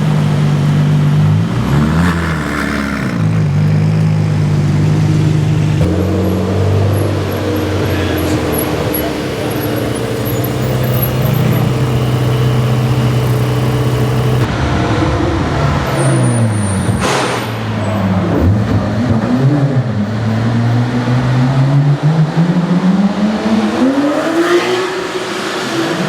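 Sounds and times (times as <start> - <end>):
supercar engines revving: 0.0 - 26.0
sharp exhaust crack: 5.8 - 14.8.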